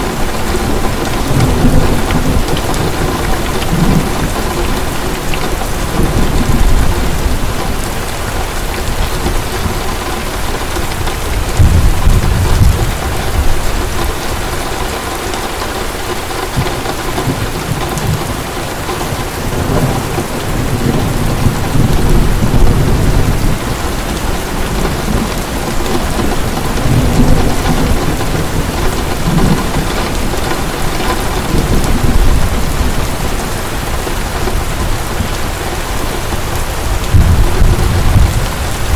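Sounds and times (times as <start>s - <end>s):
low rolls of thunder: 0.0s - 14.6s, 16.5s - 35.8s, 36.4s - 38.9s
heavy rain pouring: 0.0s - 38.9s.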